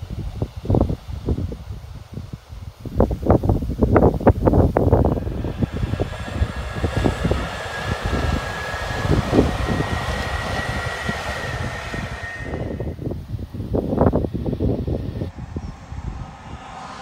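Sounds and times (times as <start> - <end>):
wind rumbling on microphone: 0.0 - 17.0
high whine rising in pitch: 3.8 - 17.0
train passing: 4.2 - 17.0.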